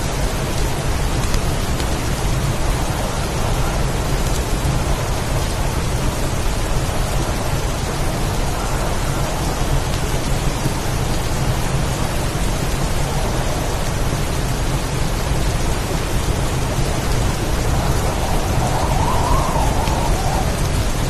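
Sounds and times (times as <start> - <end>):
heavy rain falling: 0.0 - 21.0
low rumble of thunder: 0.1 - 21.0.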